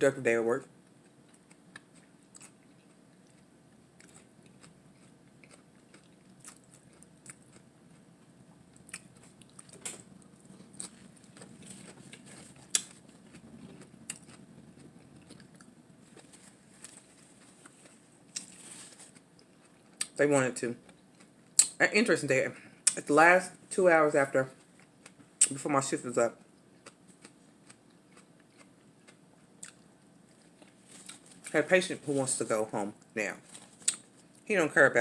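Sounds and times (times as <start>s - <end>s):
chewing and crunching: 0.8s - 20.2s, 26.4s - 31.7s, 33.0s - 34.4s.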